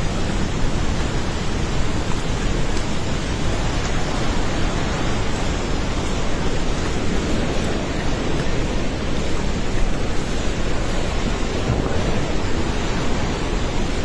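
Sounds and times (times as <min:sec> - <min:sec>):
flooded river rushing: 0:00.0 - 0:14.0.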